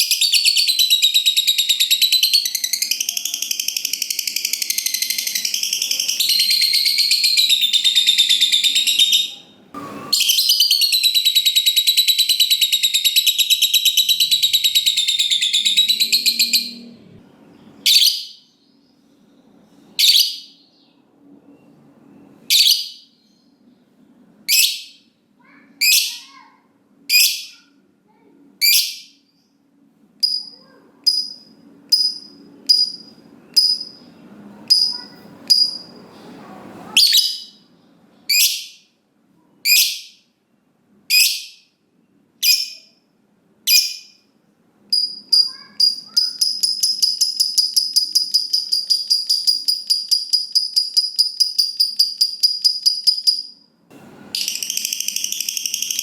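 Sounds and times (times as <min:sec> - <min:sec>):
lovebird chattering trill: 0:00.0 - 0:09.5, 0:10.2 - 0:16.9, 0:44.9 - 0:53.6.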